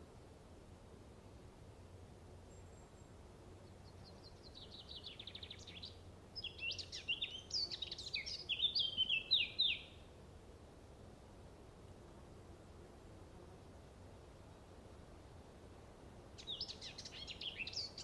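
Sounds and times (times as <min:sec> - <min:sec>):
faint steady hum: 0:00.0 - 0:18.0
songbird trilling and chirping: 0:03.8 - 0:10.0, 0:16.4 - 0:18.0.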